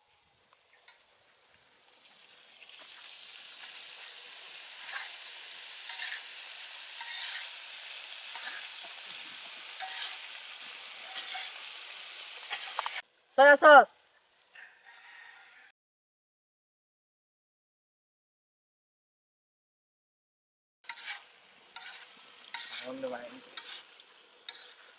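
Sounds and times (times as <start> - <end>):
pasta sizzling in a pan: 0.4 - 14.5, 20.8 - 24.9
spoon scraping a pan: 3.6 - 13.0, 20.9 - 24.9.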